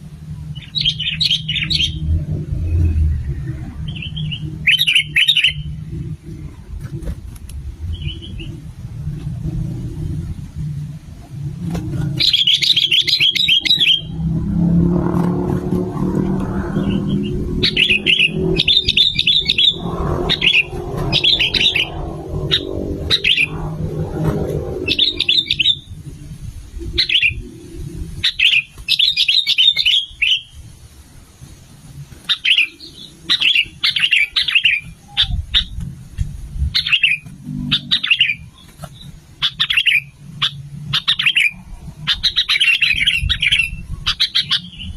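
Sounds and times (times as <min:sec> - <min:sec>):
low rumble: 0:00.0 - 0:28.4.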